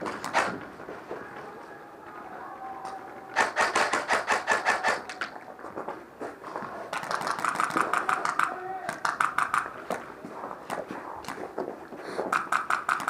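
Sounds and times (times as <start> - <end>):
airsoft rifle firing full-auto: 3.3 - 5.2, 7.0 - 9.8.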